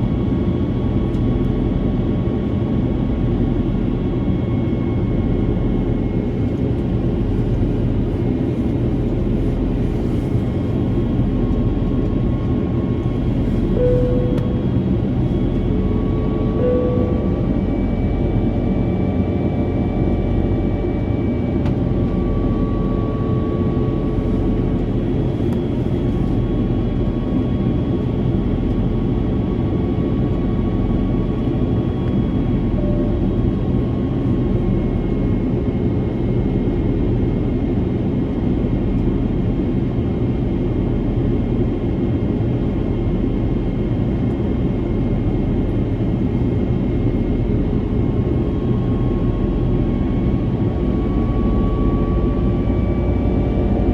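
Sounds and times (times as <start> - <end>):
jet engines and airflow in cabin: 0.0 - 53.9
faint steady tones: 13.0 - 21.1.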